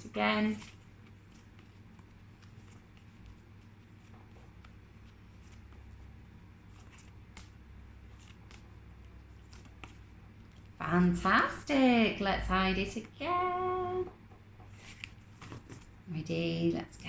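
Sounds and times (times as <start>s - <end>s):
steady low hum: 0.0s - 17.0s
paper cards clicking and rustling: 0.4s - 10.8s, 14.6s - 16.0s.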